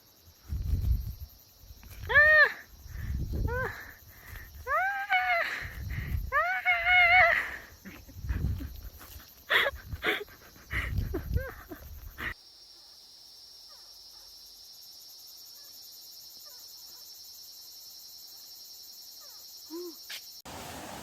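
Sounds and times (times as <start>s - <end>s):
crickets chirping: 0.0s - 21.0s
dog barking: 13.7s - 14.3s.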